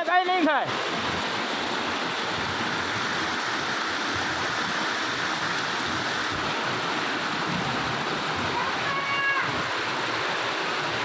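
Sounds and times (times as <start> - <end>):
floodwater rushing: 0.0 - 11.0
heavy rain: 0.0 - 11.0.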